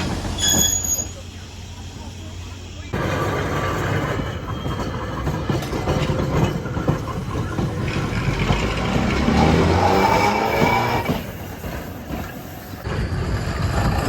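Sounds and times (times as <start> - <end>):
trolley wheels clattering on rails: 2.9 - 14.0.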